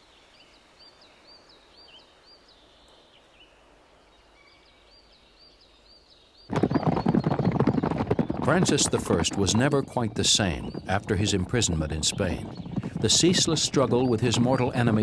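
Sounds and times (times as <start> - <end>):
bird chirping: 0.0 - 15.0
galloping horse hoofbeats: 6.5 - 15.0.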